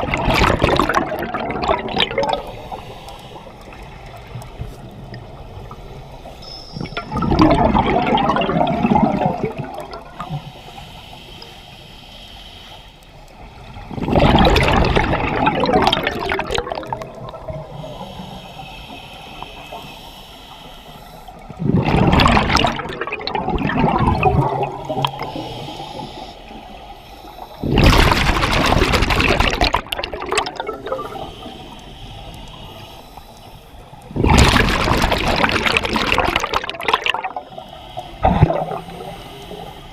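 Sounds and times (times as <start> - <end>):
exhaled bubbles gushing: 0.0 - 2.6, 6.8 - 10.3, 13.8 - 17.7, 21.5 - 25.4, 27.6 - 31.6, 34.0 - 37.5, 38.2 - 39.0
regulator inhalation hiss: 2.4 - 4.0, 10.3 - 13.2, 17.7 - 21.5, 25.1 - 27.7, 31.0 - 34.0, 37.4 - 39.9.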